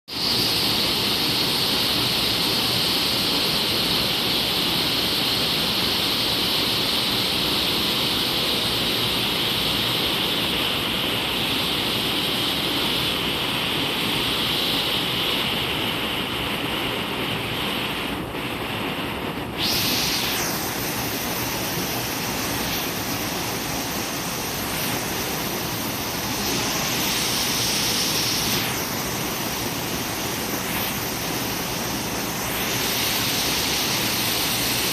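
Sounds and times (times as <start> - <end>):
waterfall splashing: 19.6 - 34.9.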